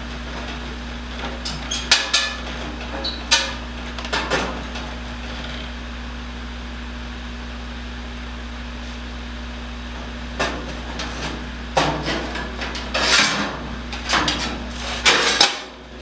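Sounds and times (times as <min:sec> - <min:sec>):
steady hum: 0:00.0 - 0:16.0
metallic clanks and knocks: 0:00.2 - 0:05.0, 0:10.0 - 0:16.0.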